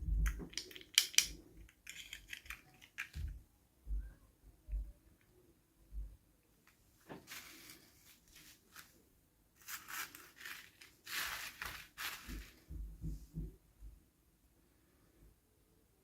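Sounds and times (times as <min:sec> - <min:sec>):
packaging tearing and crinkling: 0:09.6 - 0:12.5
soft low thumps: 0:12.2 - 0:14.1.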